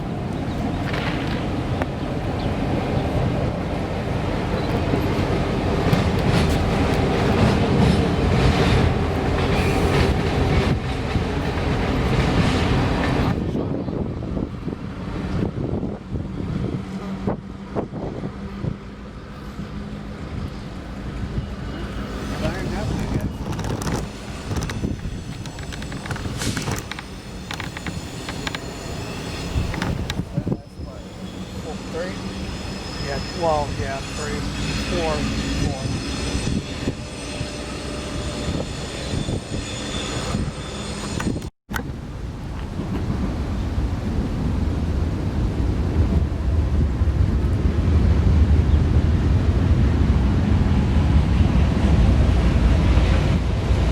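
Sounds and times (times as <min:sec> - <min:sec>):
train wheels rumbling on rail: 0:00.0 - 0:53.9
clickety-clack over rail joints: 0:00.3 - 0:13.4, 0:22.3 - 0:28.8, 0:29.5 - 0:31.0.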